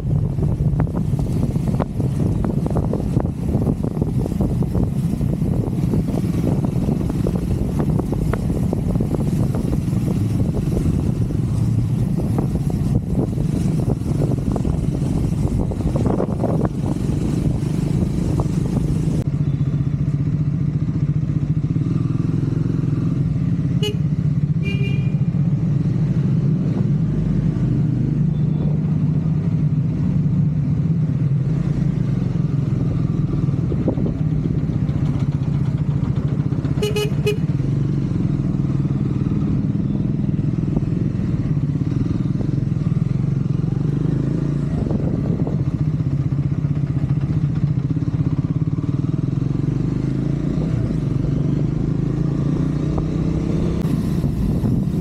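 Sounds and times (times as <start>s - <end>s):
wind rushing over microphone: 0.0s - 19.3s, 32.2s - 36.8s, 40.3s - 55.0s
motorcycle engine running: 0.0s - 55.0s.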